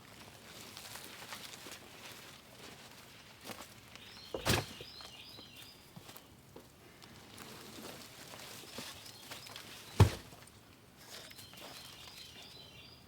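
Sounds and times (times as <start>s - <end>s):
handling noises: 4.3s - 4.9s, 9.4s - 10.4s.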